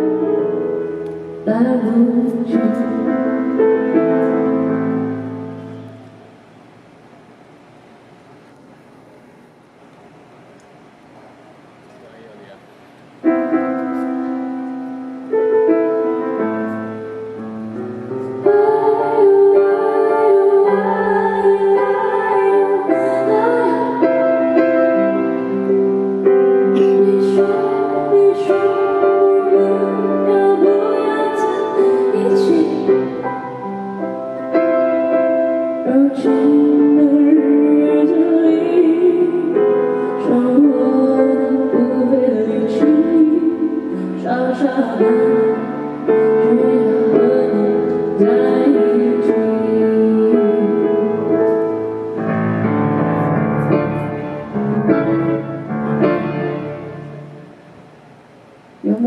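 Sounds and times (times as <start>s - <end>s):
piano pop song: 0.0s - 6.2s, 13.2s - 57.6s
woman singing: 1.4s - 4.8s, 18.2s - 24.7s, 26.7s - 33.7s, 35.8s - 51.8s.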